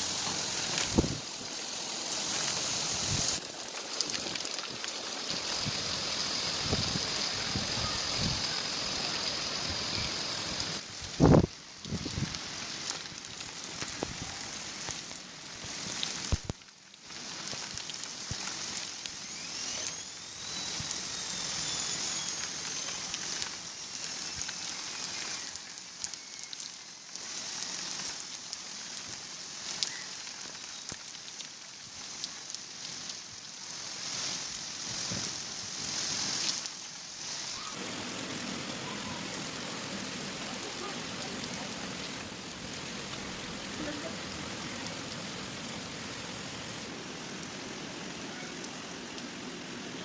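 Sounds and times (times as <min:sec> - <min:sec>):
heavy rain pouring: 0:00.0 - 0:50.0
faint whistle-like tone: 0:19.2 - 0:23.0, 0:24.9 - 0:26.7.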